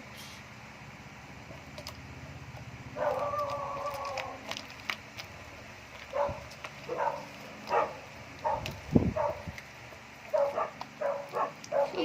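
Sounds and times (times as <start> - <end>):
dog barking: 3.0 - 4.2, 6.1 - 9.5, 10.3 - 12.0
dog whining: 3.0 - 4.8.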